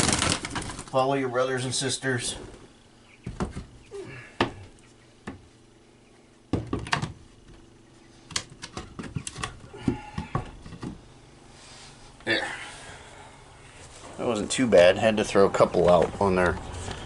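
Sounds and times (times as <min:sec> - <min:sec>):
chicks chirping: 0:02.8 - 0:04.0, 0:04.6 - 0:05.2
knocks taps and scuffling: 0:03.2 - 0:03.8, 0:04.4 - 0:05.5, 0:08.3 - 0:11.1.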